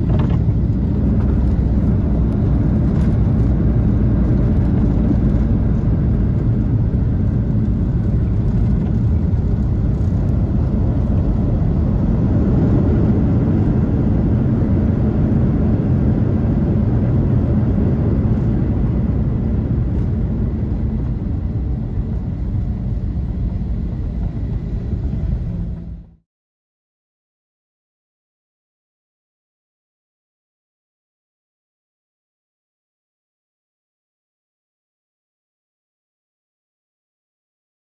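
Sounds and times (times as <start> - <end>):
airliner cabin engine rumble: 0.0 - 26.2.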